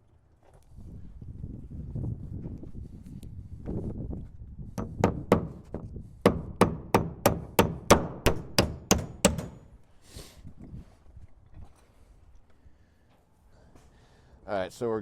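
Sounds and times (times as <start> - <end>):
hammer driving a nail into wood: 4.8 - 9.7.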